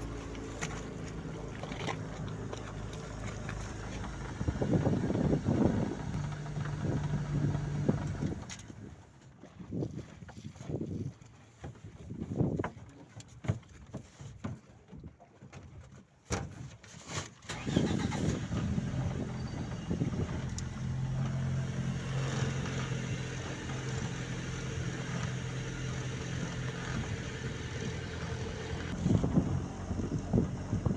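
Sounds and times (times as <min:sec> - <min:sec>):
engine running: 0:00.0 - 0:09.0, 0:17.5 - 0:30.9.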